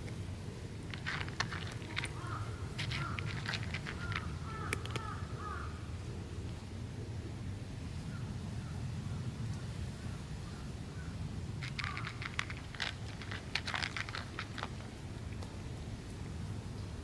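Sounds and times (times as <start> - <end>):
sharp crackling crunching clicks: 0.8 - 5.1, 11.6 - 15.5.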